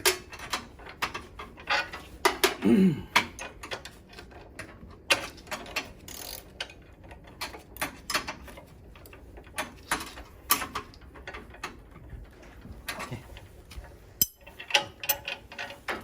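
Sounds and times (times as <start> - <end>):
hand tools clicking and knocking: 12.8 - 16.0.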